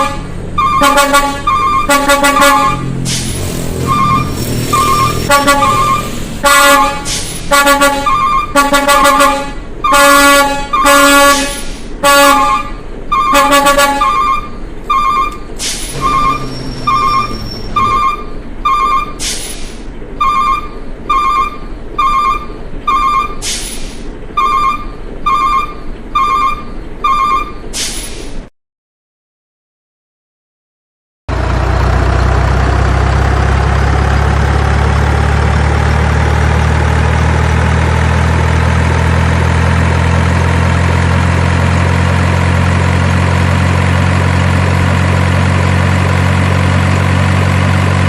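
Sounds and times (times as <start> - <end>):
horn-like blasts: 0.0 - 2.9, 3.8 - 15.4, 16.0 - 18.9
steady beeping: 0.6 - 2.9, 3.8 - 6.2, 13.1 - 19.2, 20.2 - 23.4.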